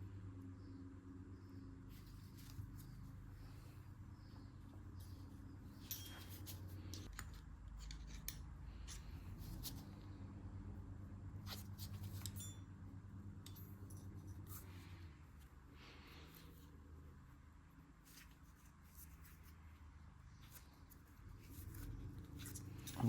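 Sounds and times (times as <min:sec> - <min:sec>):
steady low hum: 0:00.0 - 0:23.0
light scraping of parts: 0:01.9 - 0:10.1, 0:11.4 - 0:12.7, 0:13.4 - 0:16.8, 0:18.0 - 0:23.0
clicks of small metal parts: 0:06.9 - 0:09.0.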